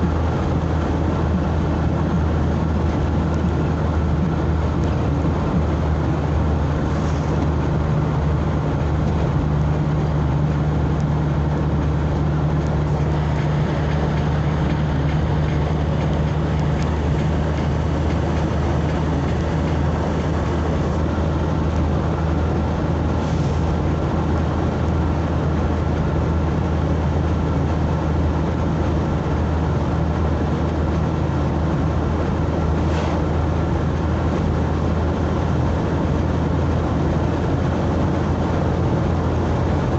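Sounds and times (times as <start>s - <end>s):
low hum: 0.0s - 29.4s
tyre and road noise: 0.0s - 39.9s
vehicle engine drone: 0.0s - 39.9s.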